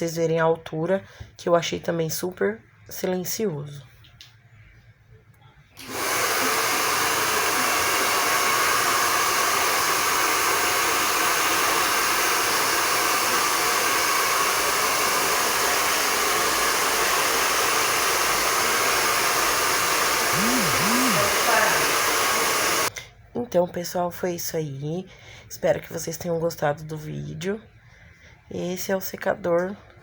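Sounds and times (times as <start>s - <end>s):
hair dryer running: 5.8s - 22.9s.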